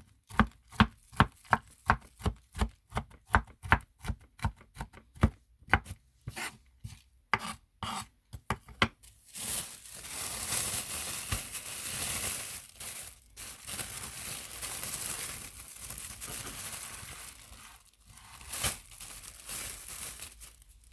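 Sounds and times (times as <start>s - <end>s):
knife chopping on cutting board: 0.3s - 8.9s
rustling of food handled: 9.0s - 20.9s.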